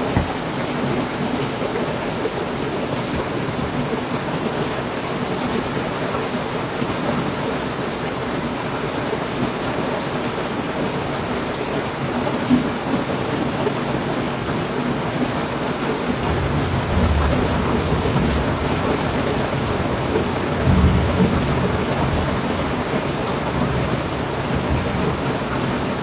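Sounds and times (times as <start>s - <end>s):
heavy rain falling: 0.0s - 26.0s
low rumble of thunder: 16.3s - 25.8s.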